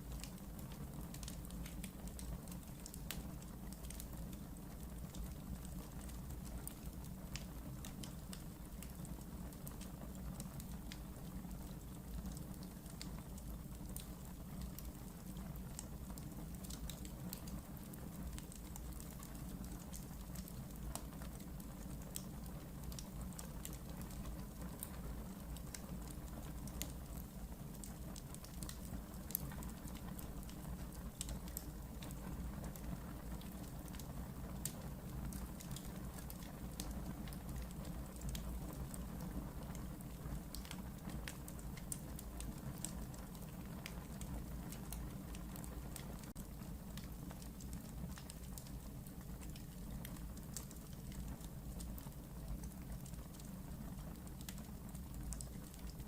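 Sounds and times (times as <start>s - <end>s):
wood fire crackling in fireplace: 0.0s - 56.0s.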